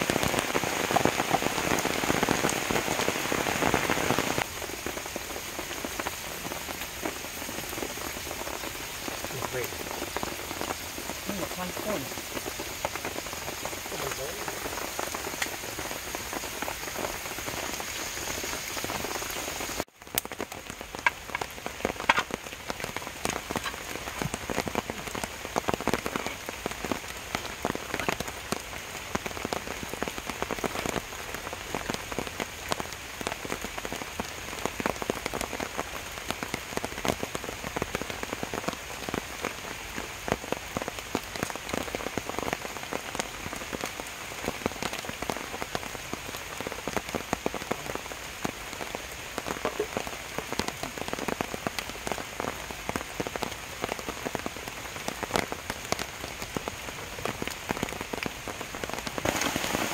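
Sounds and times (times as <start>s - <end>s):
raindrops pattering: 0.0s - 59.9s
steady rain hiss: 0.0s - 59.9s.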